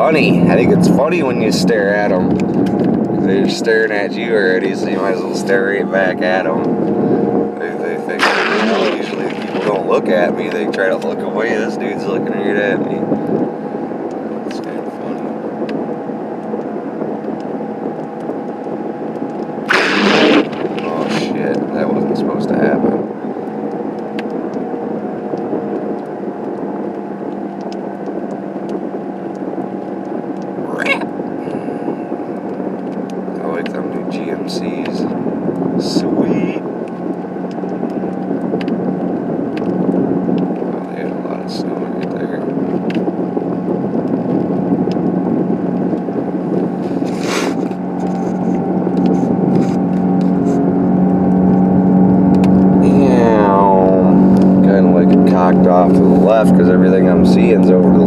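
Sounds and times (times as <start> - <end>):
car engine and tyre noise: 42.0 - 58.0
brief hiss: 46.9 - 47.7.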